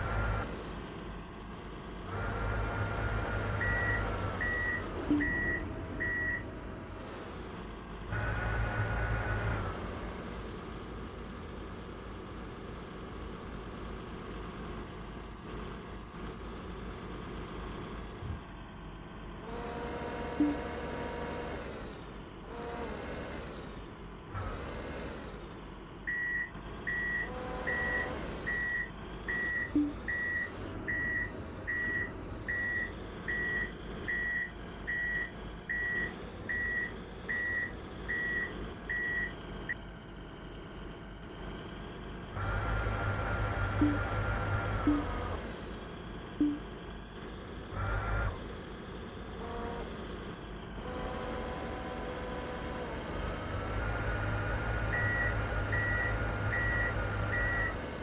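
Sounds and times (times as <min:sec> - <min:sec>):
truck engine revving: 0:00.0 - 0:10.8, 0:19.4 - 0:58.0
reversing alarm beeping: 0:03.6 - 0:06.5, 0:20.4 - 0:20.7, 0:26.1 - 0:39.4, 0:43.8 - 0:44.2, 0:44.8 - 0:45.2, 0:46.4 - 0:46.6, 0:54.9 - 0:57.8.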